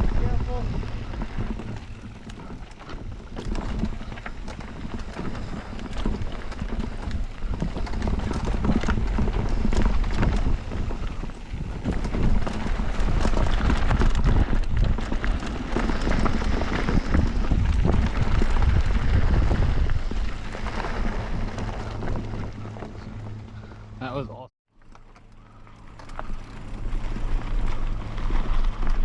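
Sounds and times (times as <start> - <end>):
wind rumble on microphone: 0.0 - 24.1, 25.4 - 29.0
bike rattling over rocks: 0.0 - 29.0.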